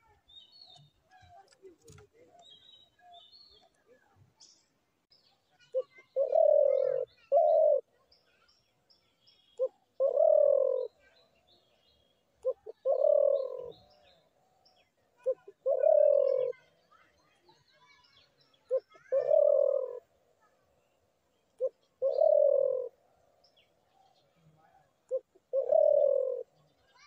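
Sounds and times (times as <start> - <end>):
small birds chirping faintly: 0.0 - 27.0
dove cooing: 5.7 - 8.0, 9.6 - 11.0, 12.4 - 14.1, 15.2 - 16.7, 18.7 - 20.1, 21.6 - 23.0, 24.7 - 26.6.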